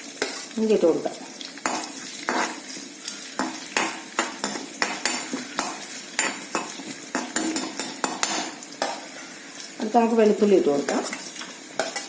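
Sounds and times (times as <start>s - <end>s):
spices sizzling in hot oil: 0.0s - 12.0s
spatula scraping and knocking pan: 1.6s - 9.3s, 10.9s - 12.0s.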